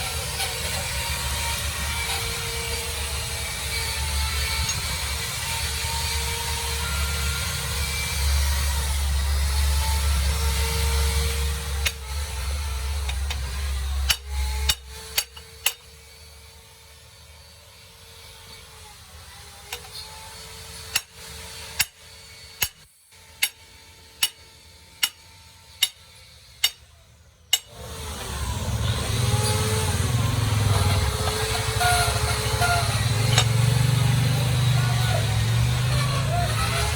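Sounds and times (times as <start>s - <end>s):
hammer striking metal: 13.1s - 15.9s, 23.4s - 23.6s, 24.2s - 24.4s, 25.0s - 25.2s, 25.8s - 26.0s, 26.6s - 26.9s, 27.5s - 27.8s, 30.5s - 36.2s
machine humming: 27.7s - 36.9s.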